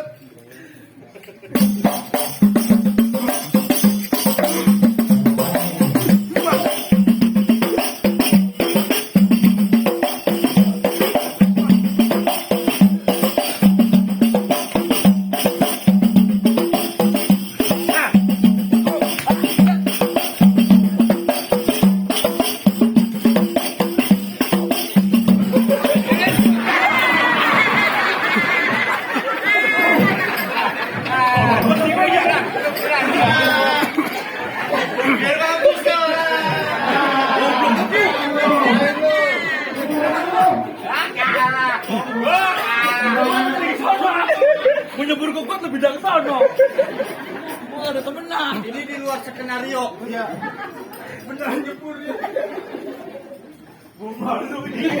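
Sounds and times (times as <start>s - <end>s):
drums: 1.5s - 34.0s
jingling tambourine rattles: 1.6s - 34.5s, 38.4s - 49.4s.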